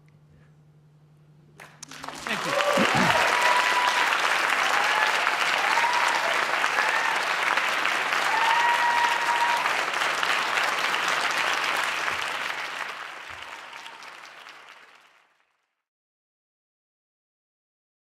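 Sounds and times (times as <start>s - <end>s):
audience applauding: 1.6s - 15.7s.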